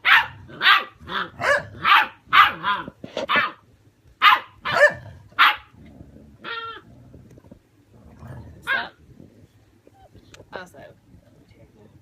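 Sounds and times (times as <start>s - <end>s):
dog barking high-pitched: 0.0s - 3.6s, 4.2s - 5.7s.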